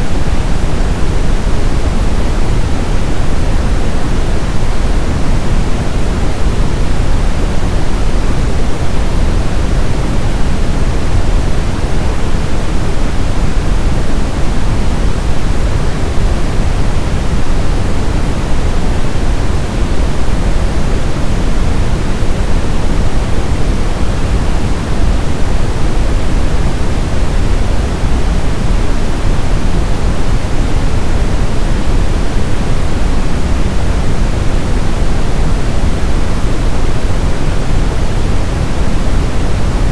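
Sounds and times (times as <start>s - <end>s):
brown noise: 0.0s - 39.9s.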